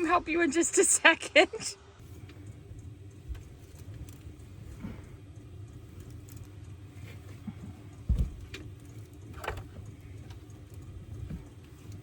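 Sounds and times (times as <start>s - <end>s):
low hum: 0.0s - 12.0s
heavy thump: 8.0s - 8.6s.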